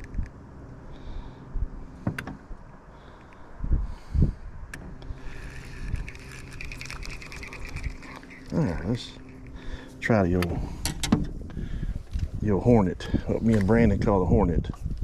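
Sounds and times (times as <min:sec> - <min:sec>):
electric motor whining and rattling: 0:04.8 - 0:12.4.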